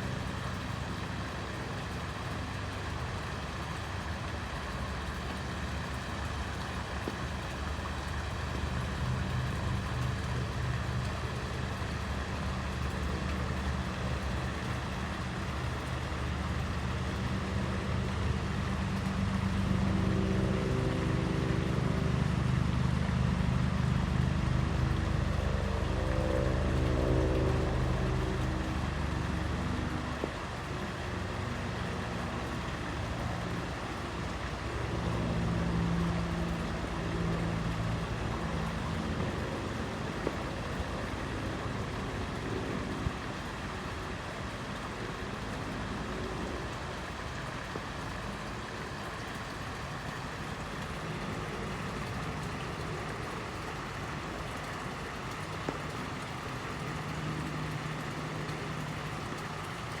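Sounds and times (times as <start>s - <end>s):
fountain water splashing: 0.0s - 60.0s
low hum: 8.3s - 31.1s.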